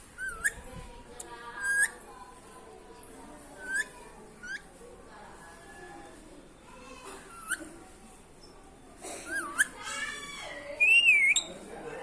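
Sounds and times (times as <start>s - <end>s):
parakeet calling: 10.8s - 11.6s.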